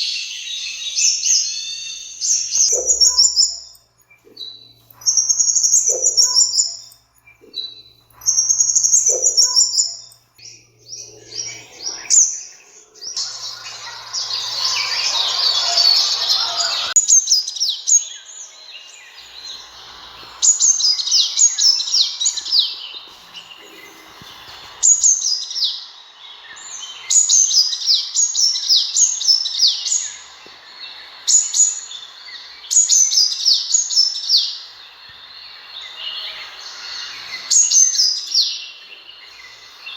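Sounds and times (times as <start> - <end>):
bird chirping: 0.0 - 39.9
harsh noisy chatter: 11.0 - 17.1.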